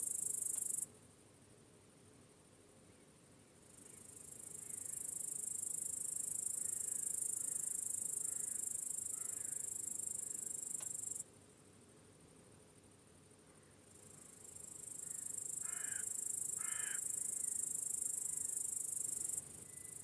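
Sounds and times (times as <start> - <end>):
cricket trilling: 0.0 - 0.8, 3.8 - 11.2, 13.6 - 20.0.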